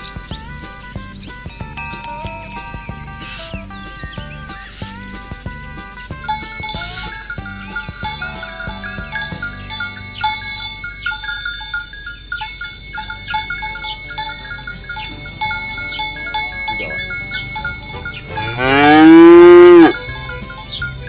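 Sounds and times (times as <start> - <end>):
light tinkling melody: 0.0 - 21.0
cow mooing: 14.3 - 20.0.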